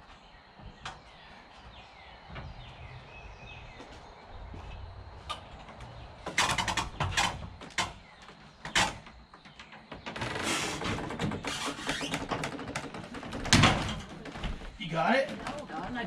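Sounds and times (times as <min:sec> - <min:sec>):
birds chirping faintly: 0:00.0 - 0:16.0
frame pieces knocking and clattering: 0:10.8 - 0:14.6.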